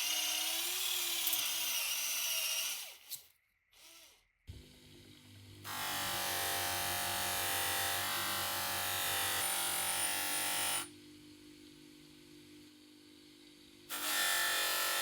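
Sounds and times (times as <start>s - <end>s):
handheld electric power tool: 0.0s - 4.3s, 5.6s - 10.9s, 13.9s - 15.0s.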